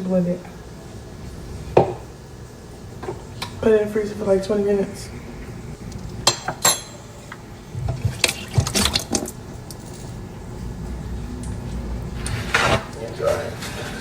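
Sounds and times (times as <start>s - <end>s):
kitchen knocks and clatter: 1.8s - 2.1s, 6.0s - 10.3s.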